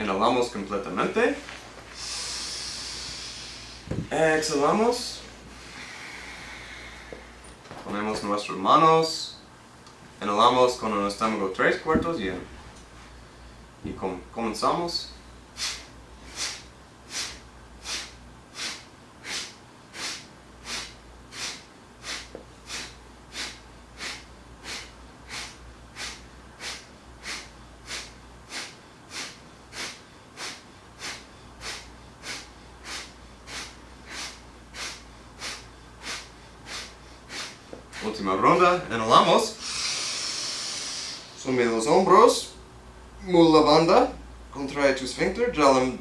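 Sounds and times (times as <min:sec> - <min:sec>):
quiet inhale: 0:01.9 - 0:04.0, 0:05.5 - 0:07.5, 0:39.6 - 0:41.4
forceful nasal exhalations: 0:01.9 - 0:04.1, 0:05.4 - 0:07.5, 0:15.6 - 0:38.1, 0:39.6 - 0:41.4.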